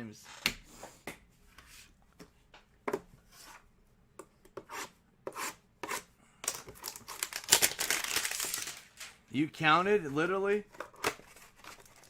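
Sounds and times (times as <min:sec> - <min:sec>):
packaging crinkling: 0:06.5 - 0:09.2.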